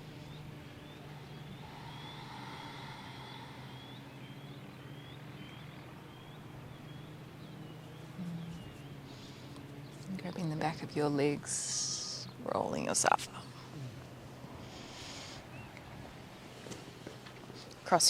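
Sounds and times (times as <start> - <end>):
small bird chirping: 0.0 - 10.6
steady low hum: 0.0 - 18.0.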